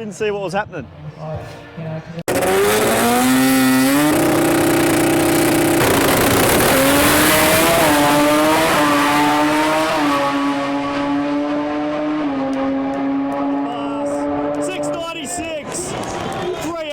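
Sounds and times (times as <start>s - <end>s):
high-pitched racing engine: 2.3s - 16.6s.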